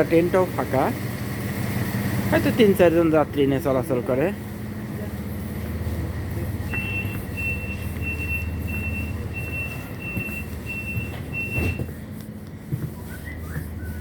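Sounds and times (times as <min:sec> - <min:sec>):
train engine rumbling: 0:00.0 - 0:14.0
high electronic beeps: 0:06.7 - 0:11.9.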